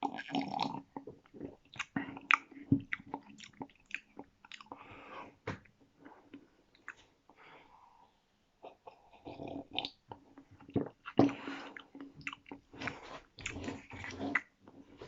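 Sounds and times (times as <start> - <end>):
person chewing with wet clicks: 0.0 - 4.9, 6.3 - 7.0, 8.9 - 14.9.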